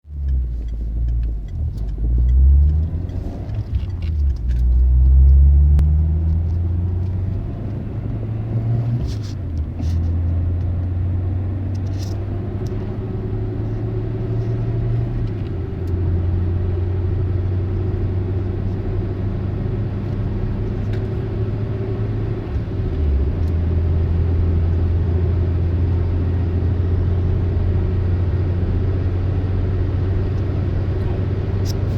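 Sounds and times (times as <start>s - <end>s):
car engine droning through exhaust: 0.1s - 31.9s.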